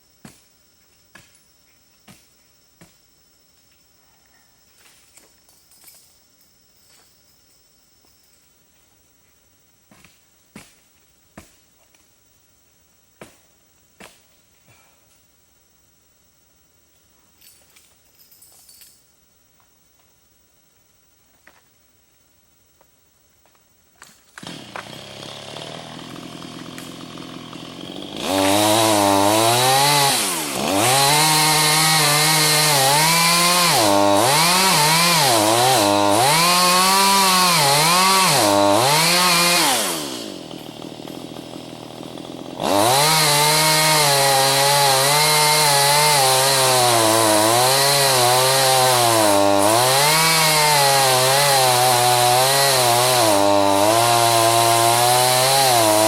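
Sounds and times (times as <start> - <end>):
chainsaw cutting wood: 24.1 - 56.0
chainsaw idling: 24.4 - 56.0.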